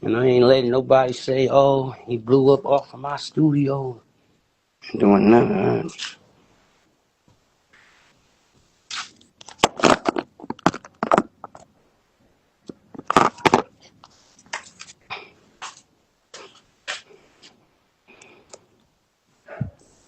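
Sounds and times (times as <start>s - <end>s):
crunching and cracking: 8.9s - 11.7s, 12.7s - 13.7s.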